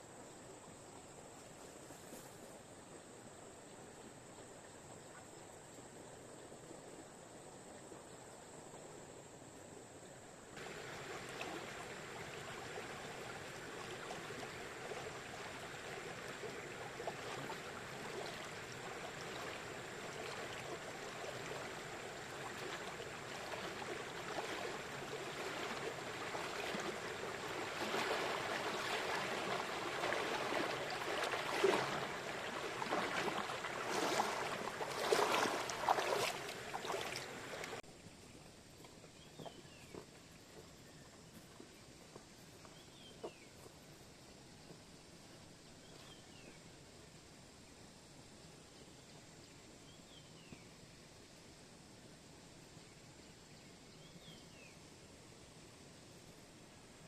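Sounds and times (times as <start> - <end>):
rushing water: 10.5 - 37.9
crackles and splashes: 10.6 - 40.1.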